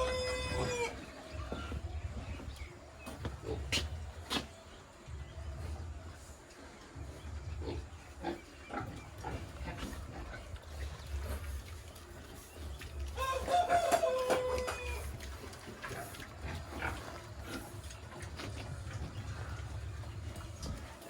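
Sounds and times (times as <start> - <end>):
rooster crowing: 0.0 - 0.9, 13.2 - 15.1.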